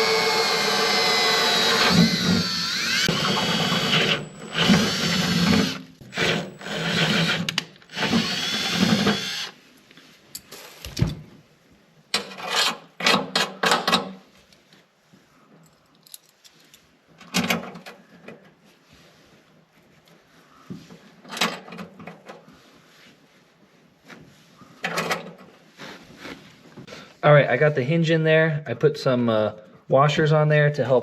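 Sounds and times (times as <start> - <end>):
power drill drilling metal: 0.0 - 9.6.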